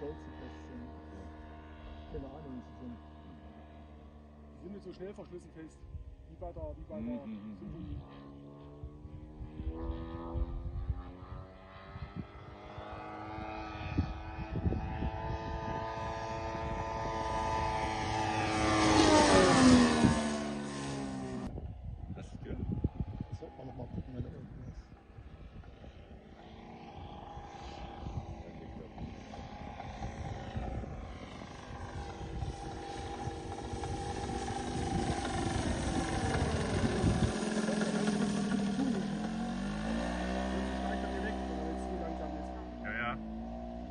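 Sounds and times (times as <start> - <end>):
model airplane propeller drone: 0.0 - 43.9.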